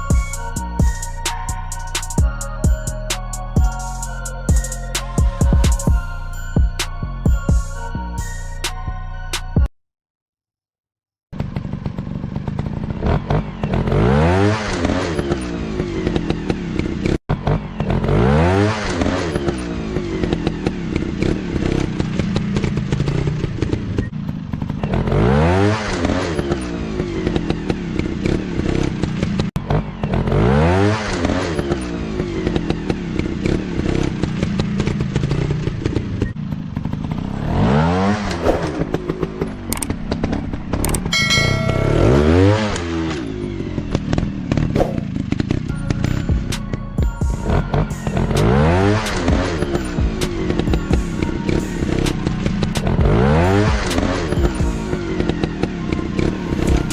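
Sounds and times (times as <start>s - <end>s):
dirt bike engine revving: 11.4s - 56.9s.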